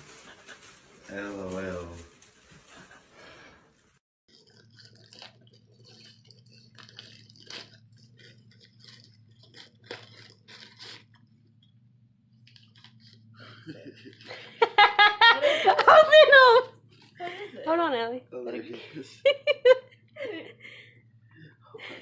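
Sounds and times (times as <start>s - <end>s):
person eating with wet crunches: 4.3s - 14.3s
steady low hum: 5.4s - 22.0s.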